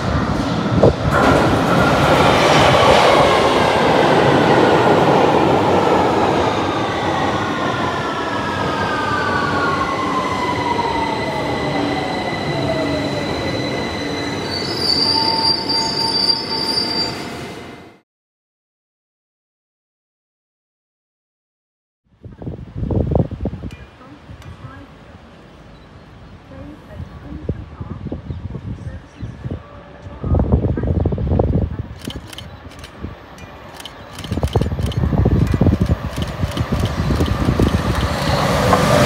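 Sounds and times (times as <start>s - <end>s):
train running on rails: 0.0s - 18.0s, 22.3s - 39.0s
high wheel squeal: 11.0s - 17.4s.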